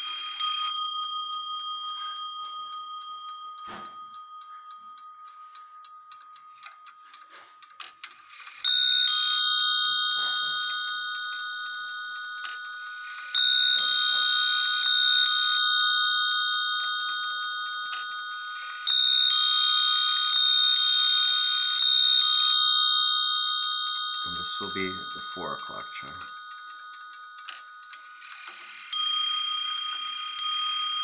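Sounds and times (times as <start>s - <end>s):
clock mechanism clicking: 0.0s - 31.0s
clock hammers striking bells: 8.6s - 27.8s.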